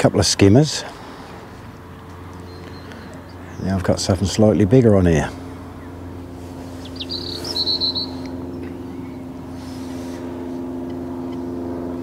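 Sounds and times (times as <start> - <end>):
steady low hum: 0.0 - 12.0
small bird chirping: 6.8 - 9.2.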